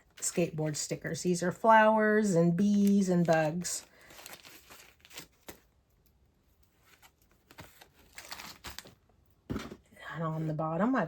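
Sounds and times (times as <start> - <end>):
quiet rustling and crinkling: 2.6 - 11.0.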